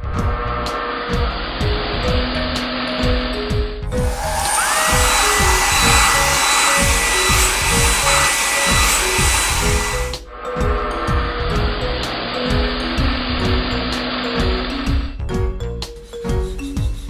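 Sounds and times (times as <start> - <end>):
background music with beat: 1.2 - 17.0
blower rushing hiss: 3.9 - 10.2
steady whine: 3.9 - 10.2.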